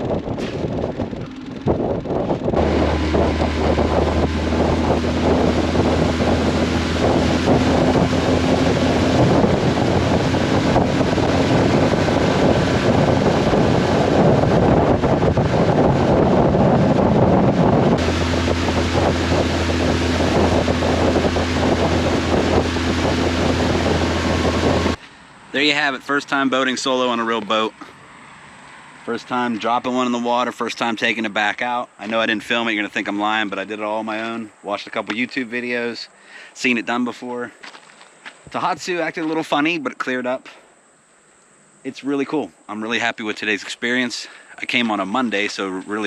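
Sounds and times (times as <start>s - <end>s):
outboard motor running: 0.0s - 25.0s
wind buffeting microphone: 0.0s - 27.7s.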